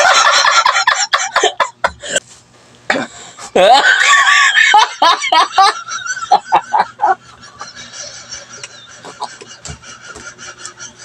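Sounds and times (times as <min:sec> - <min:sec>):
person laughing: 0:02.9 - 0:11.0.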